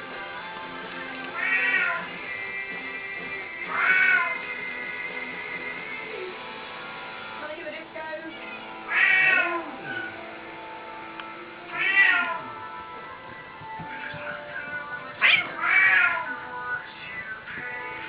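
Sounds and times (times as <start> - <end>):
background music: 0.0 - 18.0
kitten meowing: 1.4 - 2.1, 3.7 - 4.4, 8.9 - 9.7, 11.7 - 12.6, 15.2 - 16.3.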